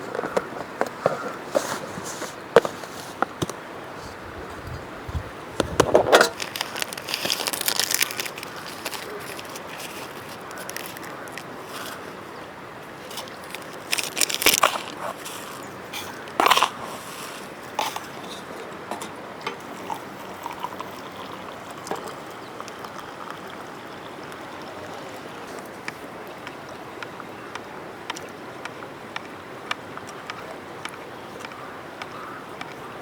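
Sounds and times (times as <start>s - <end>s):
crunching and snapping: 5.6s - 12.1s, 13.0s - 16.8s.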